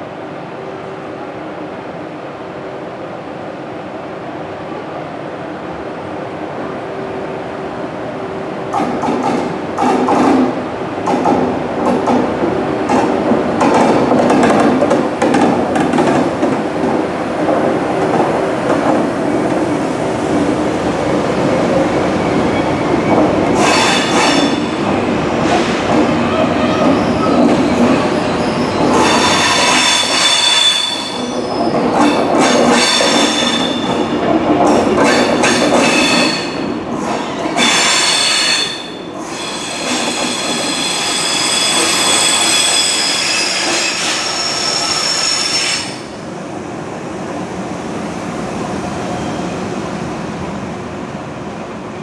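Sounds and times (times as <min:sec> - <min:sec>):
train wheels rumbling: 0:08.6 - 0:46.2
train wheels squealing: 0:22.0 - 0:24.7, 0:26.3 - 0:34.1, 0:35.1 - 0:46.2, 0:49.1 - 0:49.7.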